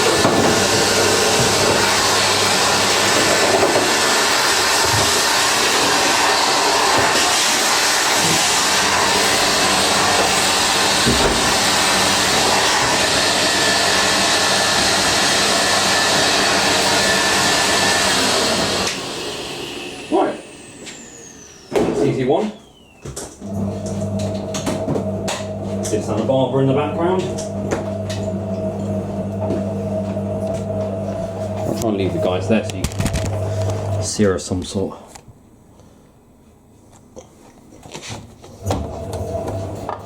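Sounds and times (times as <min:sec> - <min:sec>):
vacuum cleaner running: 0:00.0 - 0:34.4, 0:38.6 - 0:40.0.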